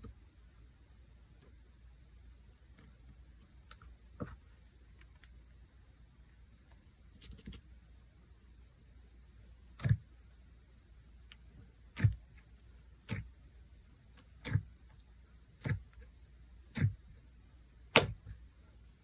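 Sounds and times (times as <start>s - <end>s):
slime clicking and popping: 17.9s - 18.3s.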